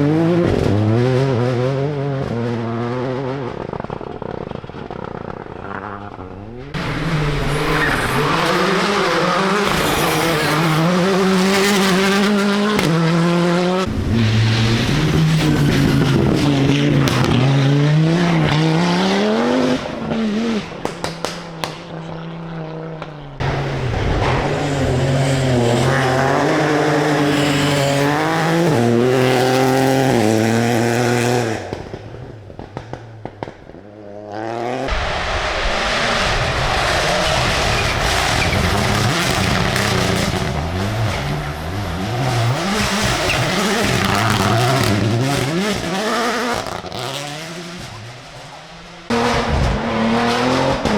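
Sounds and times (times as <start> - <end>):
rally car engine accelerating: 0.0 - 50.9
exhaust pops and crackles: 3.4 - 6.7, 31.2 - 34.0.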